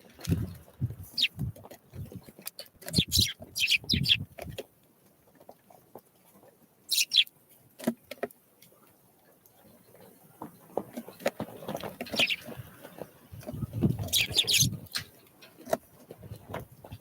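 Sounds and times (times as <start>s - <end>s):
songbirds calling: 0.1s - 4.6s, 6.9s - 7.3s, 9.6s - 15.2s.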